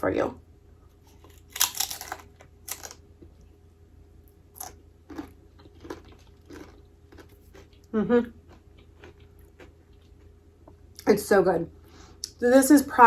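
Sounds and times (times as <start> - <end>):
crispy food crunching: 1.0 - 3.4, 4.3 - 10.4
person chewing: 1.1 - 3.4, 4.6 - 10.8.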